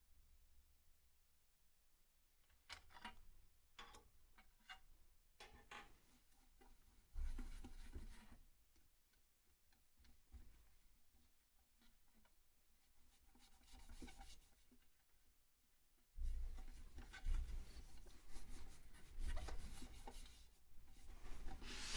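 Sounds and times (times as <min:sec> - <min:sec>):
rubbing scrape: 0:16.2 - 0:21.9
small scrapes: 0:16.6 - 0:21.9.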